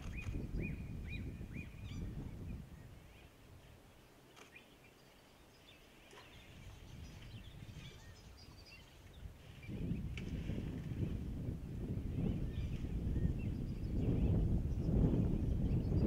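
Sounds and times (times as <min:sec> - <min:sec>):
faint clicks: 0:04.3 - 0:04.7.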